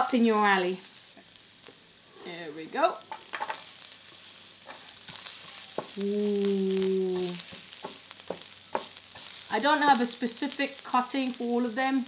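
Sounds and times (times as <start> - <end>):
garlic and ginger sizzling in oil: 0.0 - 12.0
wooden spatula scraping wok: 2.2 - 6.0, 7.1 - 10.9.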